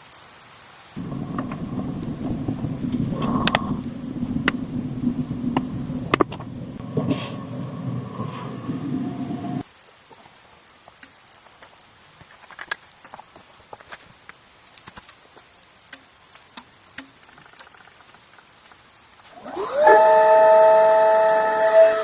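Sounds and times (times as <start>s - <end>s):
light ticks and taps: 9.7s - 19.1s
kettle whistling: 19.3s - 22.0s.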